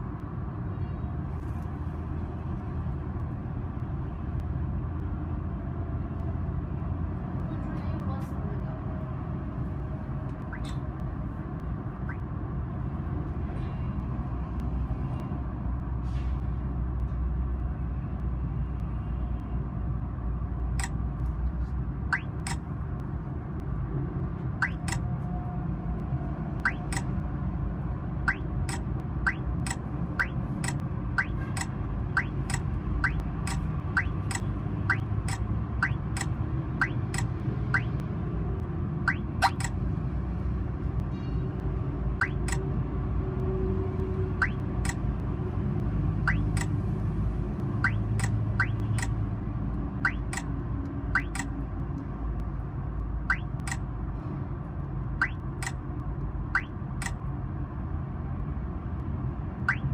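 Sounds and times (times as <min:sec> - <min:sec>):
vehicle engine and road rumble: 0:00.0 - 0:59.9
sharp regular ticking: 0:20.8 - 0:21.1, 0:22.0 - 0:23.0, 0:24.6 - 0:25.2, 0:26.6 - 0:27.2, 0:28.1 - 0:39.8, 0:42.1 - 0:42.7, 0:44.3 - 0:46.8, 0:47.6 - 0:51.6, 0:53.2 - 0:54.0, 0:55.2 - 0:57.2, 0:59.6 - 0:59.9.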